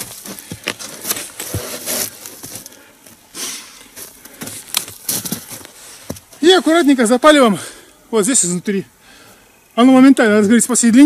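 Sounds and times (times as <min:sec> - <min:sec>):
scrapes and rustles: 0:00.0 - 0:03.2.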